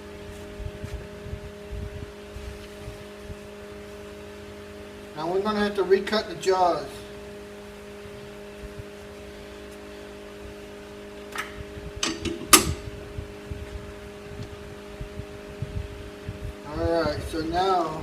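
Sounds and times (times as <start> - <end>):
electric hum of lathe machinery: 0.0 - 18.0
sharp metallic clanks: 12.0 - 12.9.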